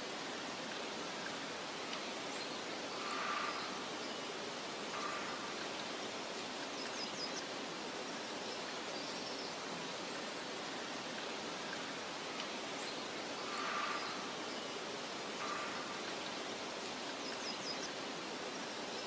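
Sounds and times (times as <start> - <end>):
wind through vegetation: 0.0 - 19.0
faint bird chirps: 2.3 - 6.0, 12.8 - 18.0.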